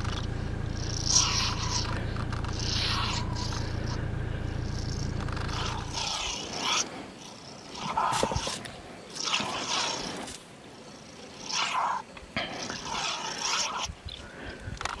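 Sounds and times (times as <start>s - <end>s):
low rumble: 0.0s - 6.6s
animal snarl: 0.0s - 10.4s, 11.2s - 14.1s
animals hissing and growling: 0.0s - 15.0s.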